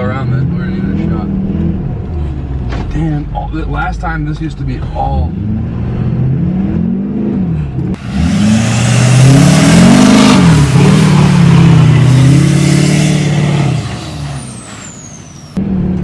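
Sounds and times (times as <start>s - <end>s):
diesel truck engine revving: 0.0s - 2.7s, 5.0s - 16.0s.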